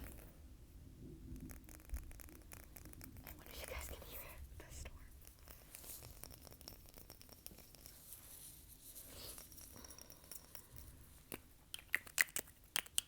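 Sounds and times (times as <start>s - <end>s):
soft rustling: 3.4s - 11.7s
finger clicks: 11.3s - 13.0s.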